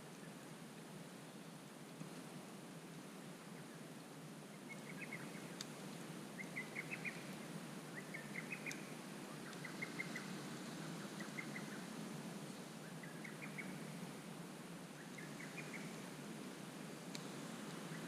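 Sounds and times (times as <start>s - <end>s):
campfire hissing and ticking: 0.0s - 18.0s
bird calling in rapid trills: 6.4s - 7.3s, 7.9s - 11.9s, 15.0s - 16.0s.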